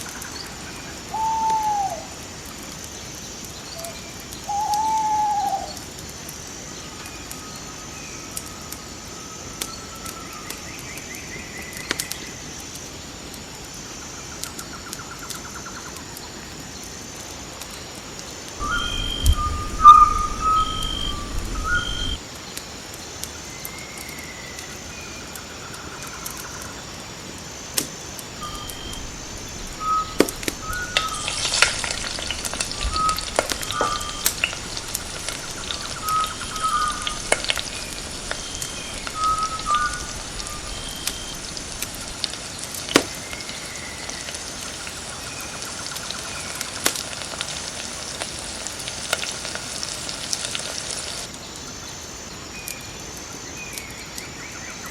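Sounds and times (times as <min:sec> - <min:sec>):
bird calls and trills: 0:00.0 - 0:12.6, 0:18.4 - 0:22.2, 0:28.4 - 0:46.8
crackling sizzle: 0:00.0 - 0:51.8
low rumble: 0:18.6 - 0:22.2, 0:28.4 - 0:42.5.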